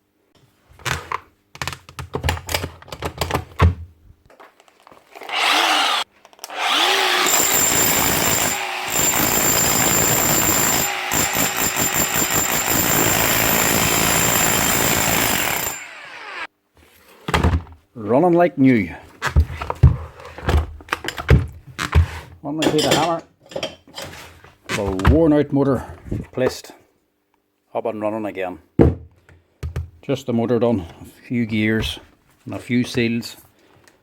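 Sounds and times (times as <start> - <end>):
rotary hammer whining: 5.3 - 16.5.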